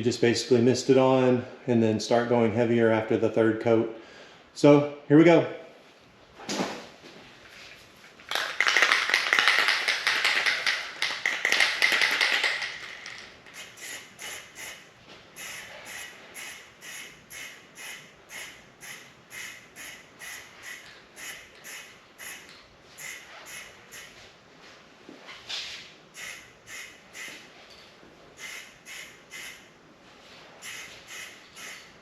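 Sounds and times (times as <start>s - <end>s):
aerosol spray puffs: 8.4s - 14.8s, 15.4s - 24.2s, 26.2s - 27.5s, 28.4s - 29.7s, 30.6s - 31.9s
aerosol can hissing: 13.6s - 14.8s, 15.4s - 22.4s, 23.0s - 24.2s, 26.2s - 27.4s, 28.4s - 29.6s, 30.6s - 31.9s.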